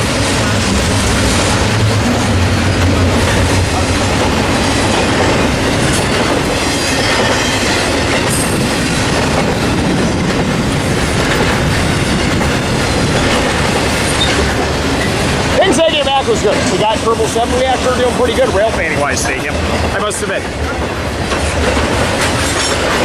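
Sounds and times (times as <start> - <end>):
low rumble: 0.0 - 6.5
train wheels on rails: 0.0 - 23.0.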